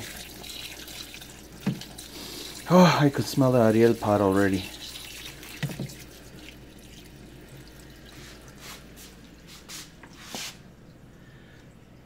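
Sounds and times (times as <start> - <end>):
water splashing into tub: 0.0 - 2.8, 4.0 - 10.6.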